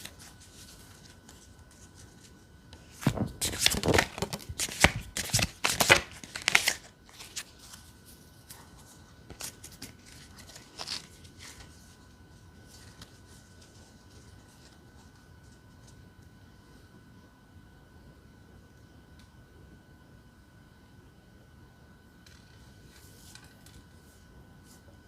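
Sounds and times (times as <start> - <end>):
cards being shuffled: 0.0 - 7.8, 8.4 - 11.8.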